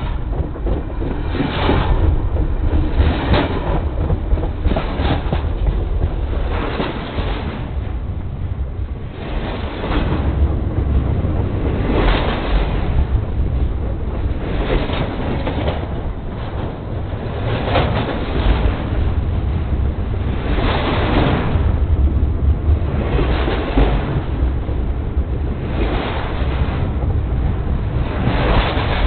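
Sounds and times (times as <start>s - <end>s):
wheel clatter: 0.0s - 7.8s
train rumbling over track: 0.0s - 29.0s.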